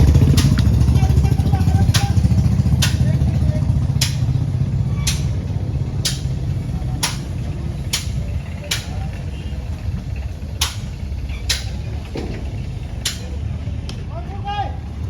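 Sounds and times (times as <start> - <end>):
sharp clicks: 0.2 - 0.9, 5.0 - 5.4, 7.9 - 9.2, 10.6 - 11.9, 13.0 - 13.3.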